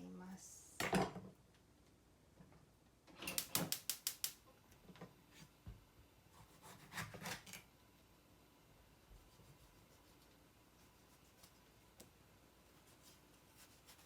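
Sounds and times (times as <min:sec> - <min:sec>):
sharp clicks: 0:03.3 - 0:04.4.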